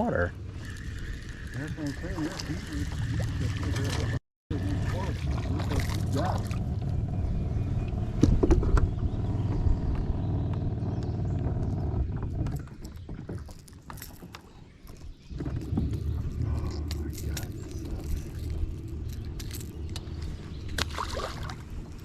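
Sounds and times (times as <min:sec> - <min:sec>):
low motor hum: 0:00.0 - 0:14.3, 0:15.2 - 0:22.0
light clicks and rattles: 0:12.2 - 0:20.9.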